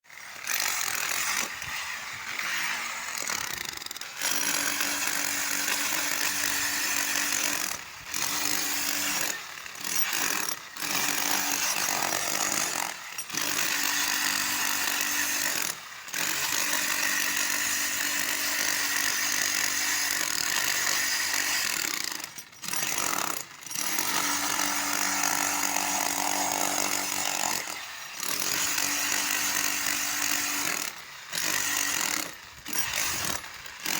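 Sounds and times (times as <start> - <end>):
power tool running: 0.1 - 33.9.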